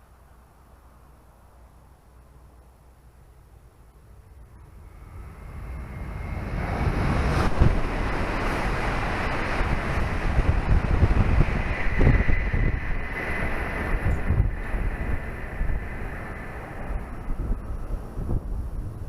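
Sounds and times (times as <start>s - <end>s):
high-speed train passing: 0.0s - 19.0s
wind buffeting microphone: 4.4s - 19.0s.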